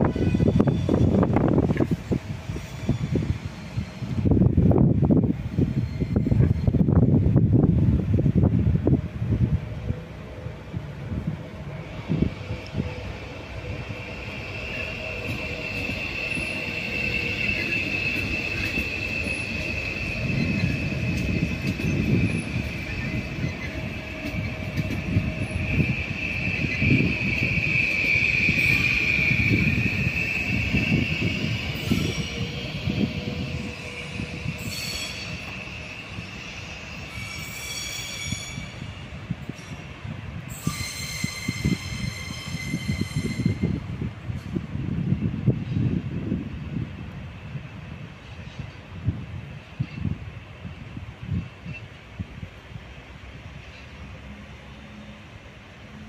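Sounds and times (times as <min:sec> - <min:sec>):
train wheels squealing: 0:00.0 - 0:07.0, 0:11.8 - 0:44.6, 0:45.5 - 0:46.0, 0:48.2 - 0:48.9, 0:49.8 - 0:50.2
low rumble of train wheels: 0:00.0 - 0:56.0.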